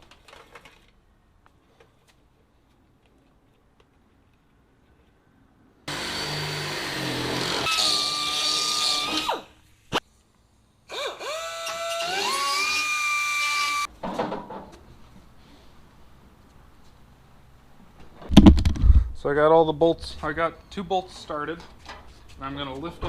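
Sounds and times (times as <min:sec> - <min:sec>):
cordless drill motor whine: 0:10.9 - 0:13.9.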